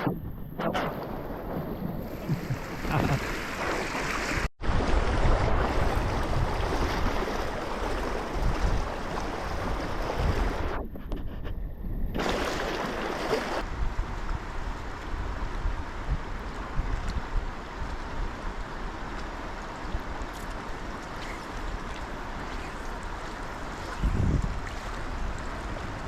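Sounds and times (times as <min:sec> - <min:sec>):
creek water rushing: 0:02.1 - 0:10.6, 0:12.2 - 0:13.7, 0:17.6 - 0:26.0
wind buffeting microphone: 0:04.6 - 0:12.2, 0:23.8 - 0:26.0.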